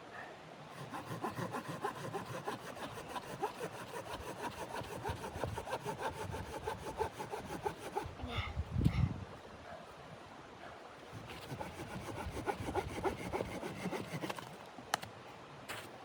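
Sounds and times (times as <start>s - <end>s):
hand saw cutting wood: 0.7s - 8.2s, 11.1s - 14.6s.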